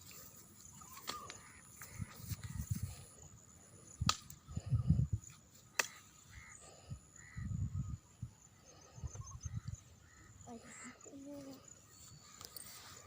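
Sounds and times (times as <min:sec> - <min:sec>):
crow cawing: 0:05.8 - 0:07.5.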